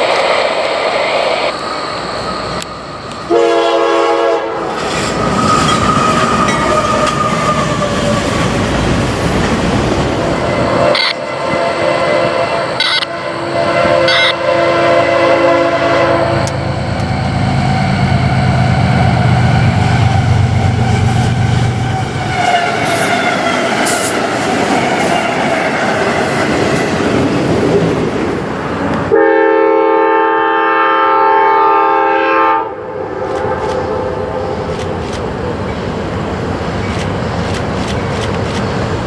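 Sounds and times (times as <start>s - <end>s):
locomotive engine drone: 0.0s - 29.2s, 32.7s - 39.0s
train rail noise: 0.0s - 39.0s
locomotive air horn blast: 3.3s - 4.8s, 10.8s - 16.5s, 29.1s - 34.7s.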